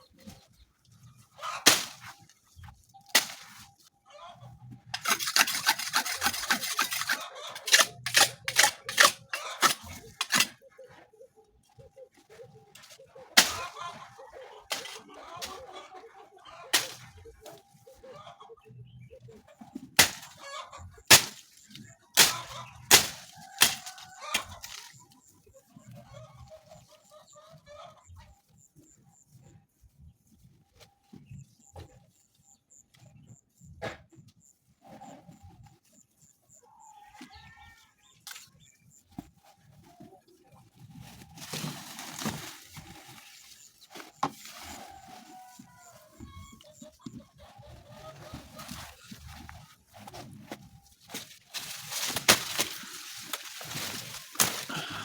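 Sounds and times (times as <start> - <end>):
chickens clucking: 0.0 - 55.0
sharp knocks and clatters: 5.0 - 10.6
rustling noise: 14.7 - 15.6, 38.3 - 55.0.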